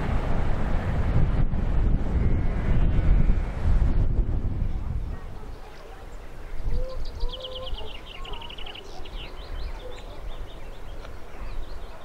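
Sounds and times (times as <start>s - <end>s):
wind rumble on microphone: 0.0s - 12.0s
songbird chirping: 5.2s - 12.0s.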